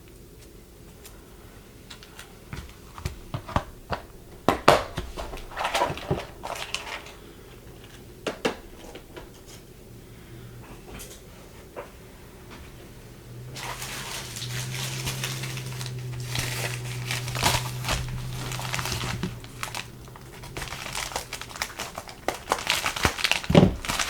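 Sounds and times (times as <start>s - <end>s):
plastic packaging clicks: 1.9s - 9.5s, 13.6s - 24.0s
plastic crinkling: 1.9s - 9.7s, 13.5s - 24.0s.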